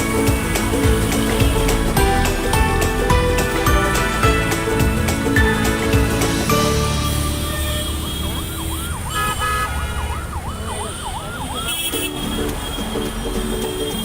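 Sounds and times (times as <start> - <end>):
low traffic rumble: 0.0 - 14.0
siren rising and falling: 6.9 - 11.9.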